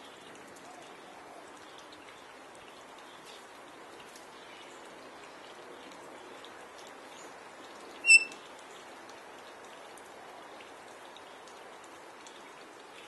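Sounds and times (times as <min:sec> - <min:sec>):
galah high-pitched call: 0:08.0 - 0:08.4.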